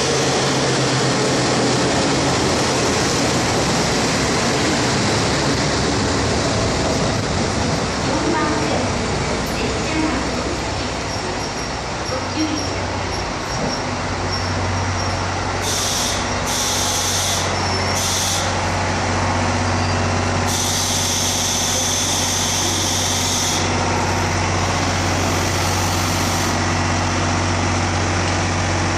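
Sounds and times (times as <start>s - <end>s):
diesel train engine idling: 0.0s - 28.9s
air brake hissing: 15.6s - 18.6s, 20.5s - 23.7s.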